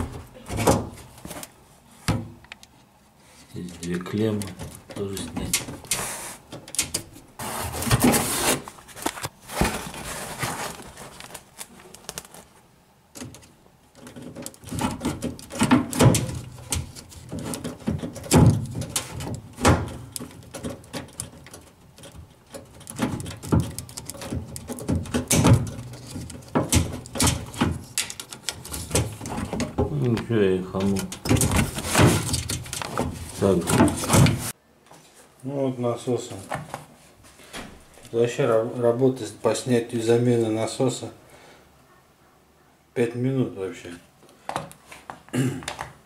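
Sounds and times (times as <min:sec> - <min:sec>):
plastic and metal scraping: 0:03.4 - 0:12.6, 0:13.2 - 0:34.6
clicks and knocks of parts: 0:03.7 - 0:07.2, 0:13.1 - 0:34.5.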